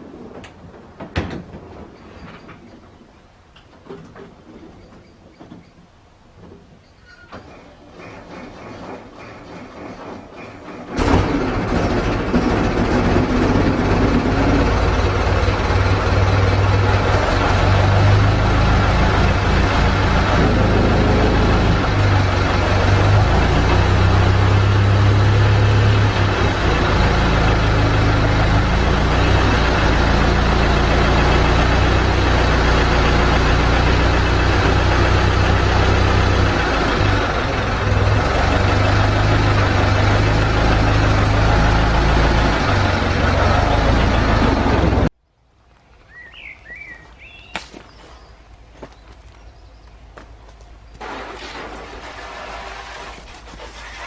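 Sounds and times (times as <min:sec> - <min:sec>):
car engine idling: 0:11.0 - 0:45.1.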